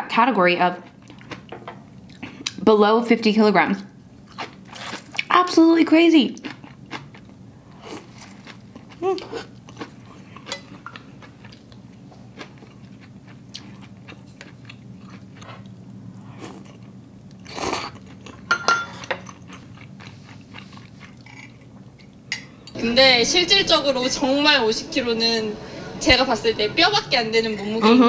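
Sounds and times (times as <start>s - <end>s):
low steady hum: 0.0s - 28.0s
rush of noise: 22.8s - 27.8s.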